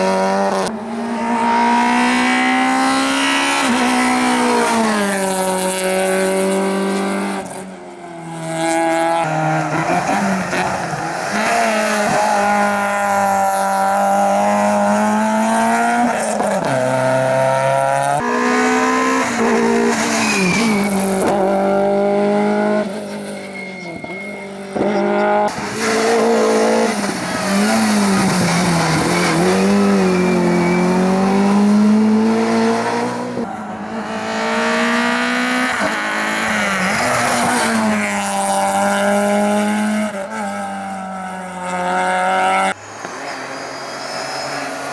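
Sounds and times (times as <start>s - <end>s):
rally car engines revving hard: 0.0s - 7.6s, 8.3s - 23.2s, 24.0s - 44.9s
tyre squeal: 19.2s - 31.6s, 42.5s - 44.9s.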